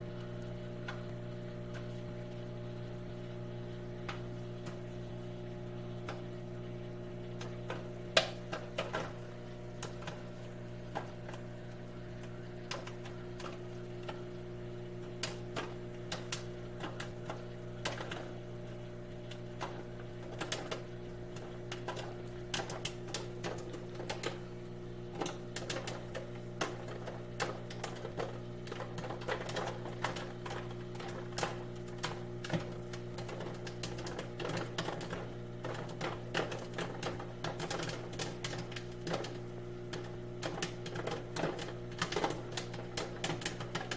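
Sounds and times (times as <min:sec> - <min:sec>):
microwave oven humming: 0:00.0 - 0:43.9
popcorn popping: 0:00.0 - 0:43.9.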